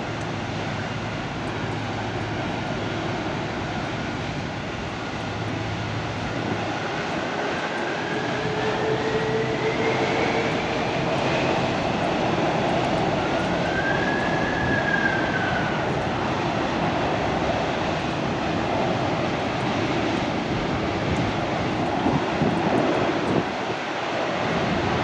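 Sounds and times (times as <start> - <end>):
faint engine whine: 0.0 - 23.8
jet engines running: 0.0 - 25.0.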